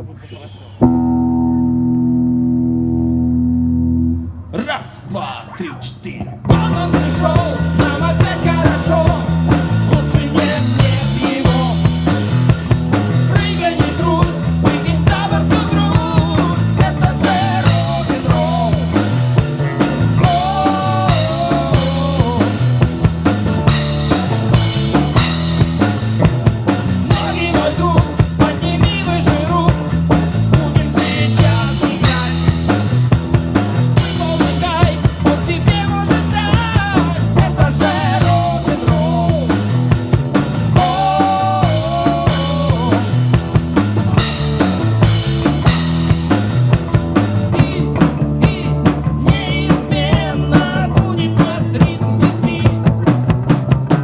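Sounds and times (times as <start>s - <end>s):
bending lead guitar note: 0.8s - 4.5s
rock band playing: 0.8s - 4.5s, 6.5s - 54.0s
bass line: 0.8s - 4.7s, 6.4s - 54.0s
person singing: 6.5s - 23.0s, 26.3s - 33.0s, 34.0s - 44.7s, 47.4s - 53.2s
drum kit beat: 6.5s - 54.0s.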